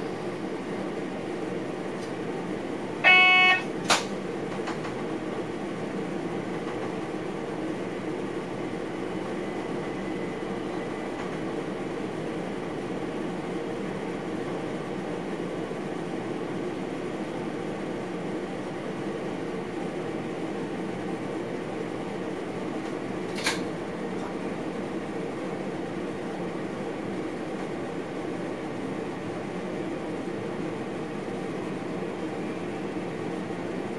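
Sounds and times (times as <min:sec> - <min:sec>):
train running: 0:00.0 - 0:33.9
loud electronic tone: 0:03.0 - 0:03.8
sharp click-like tone: 0:03.0 - 0:04.1.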